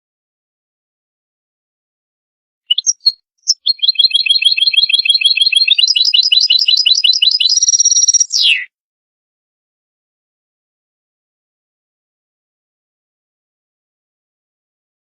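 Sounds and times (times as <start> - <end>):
goldfinch singing: 2.7 - 8.7.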